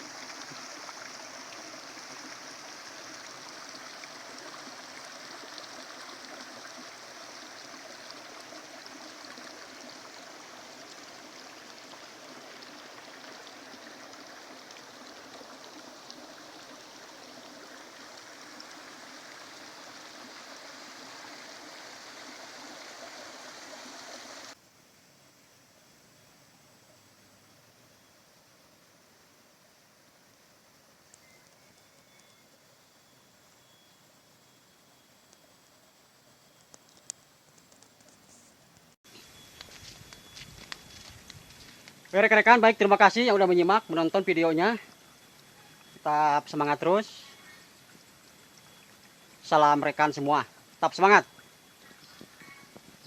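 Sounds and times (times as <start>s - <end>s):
water rushing in stream: 0.0s - 24.6s
faint hiss: 0.0s - 53.0s.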